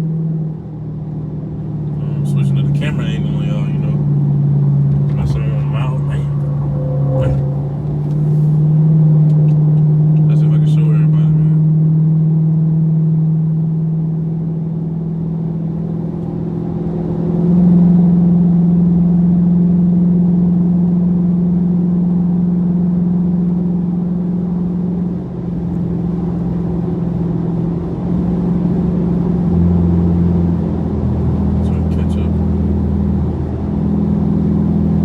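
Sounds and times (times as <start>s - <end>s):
deeper hum: 0.0s - 15.9s, 26.3s - 35.0s
car engine droning: 0.0s - 35.0s.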